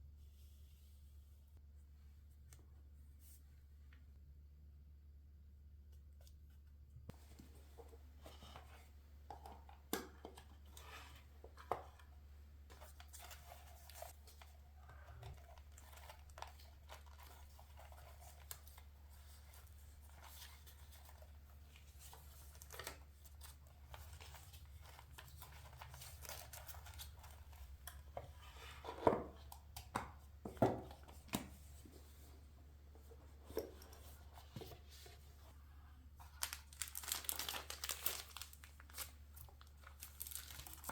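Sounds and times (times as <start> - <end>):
paper rustling: 12.7 - 29.2, 36.2 - 40.9.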